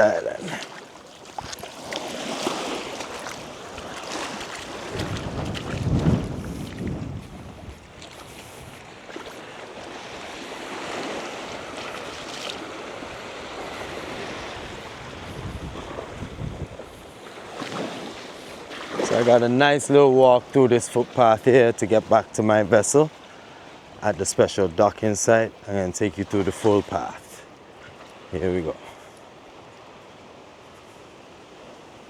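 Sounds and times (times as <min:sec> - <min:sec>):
small waves washing on shore: 0:00.0 - 0:32.0
wind buffeting microphone: 0:03.3 - 0:09.0, 0:12.7 - 0:17.2.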